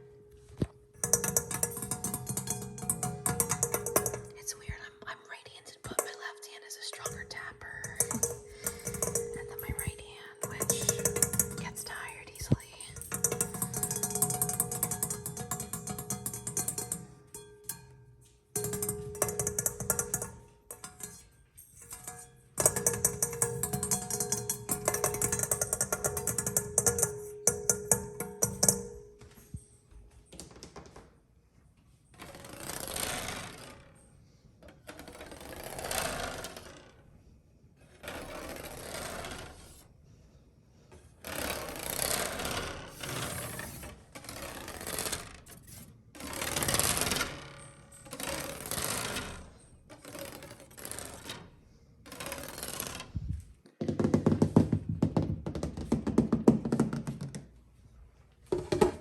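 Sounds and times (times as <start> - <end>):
tapping on objects: 0.4 - 5.0, 5.8 - 29.6.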